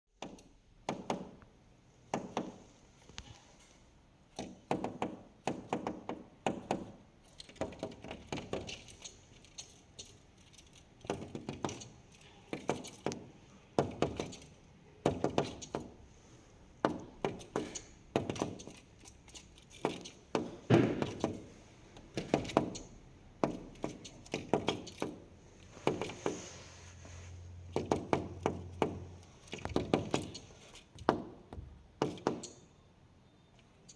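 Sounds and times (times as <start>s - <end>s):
bird tapping beak on glass: 16.8s - 21.5s, 22.1s - 26.1s, 27.7s - 30.4s, 32.0s - 32.6s.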